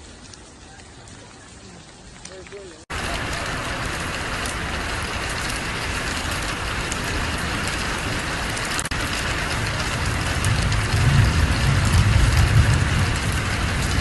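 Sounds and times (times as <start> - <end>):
heavy rain pattering: 0.0 - 14.0
low rumble: 2.9 - 14.0.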